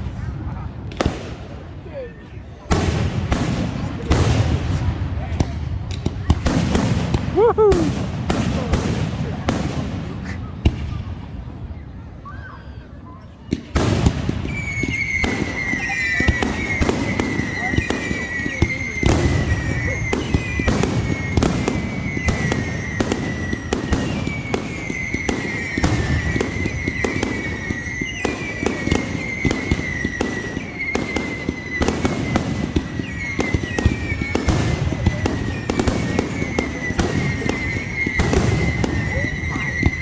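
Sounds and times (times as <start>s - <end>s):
fireworks bangs and crackles: 0.0s - 40.0s
high sliding whistle: 14.5s - 32.4s, 33.0s - 40.0s.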